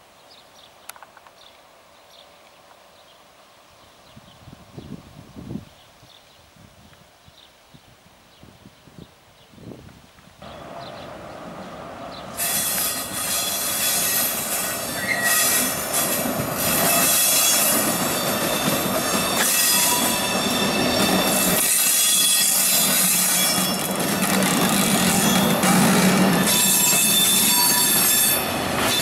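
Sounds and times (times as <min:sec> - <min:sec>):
locomotive diesel engine: 0:10.4 - 0:12.4
train wheels squealing on rails: 0:12.2 - 0:29.0.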